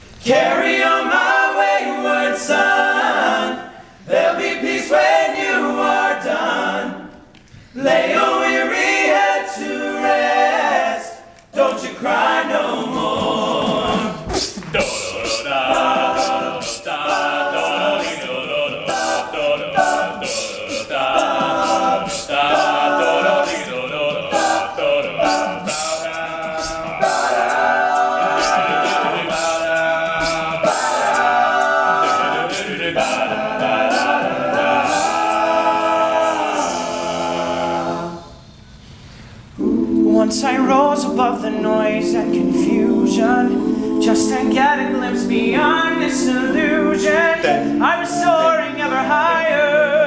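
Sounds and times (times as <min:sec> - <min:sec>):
vocal group singing in harmony: 0:00.0 - 0:50.0
vocal percussion beat: 0:07.1 - 0:38.6.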